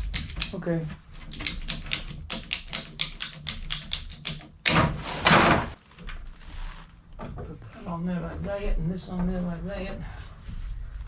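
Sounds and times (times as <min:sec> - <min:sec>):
pipe cutter ratchet clicking: 0:00.0 - 0:00.6, 0:01.3 - 0:04.8.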